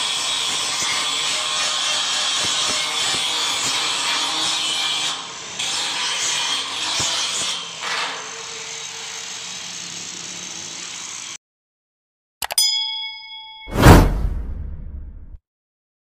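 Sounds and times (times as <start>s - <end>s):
angle grinder grinding steel: 0.2s - 11.4s.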